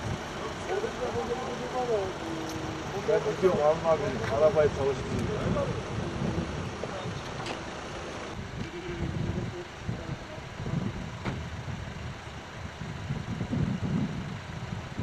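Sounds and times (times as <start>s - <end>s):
car engine running: 0.0s - 15.0s
wind on microphone: 2.4s - 15.0s.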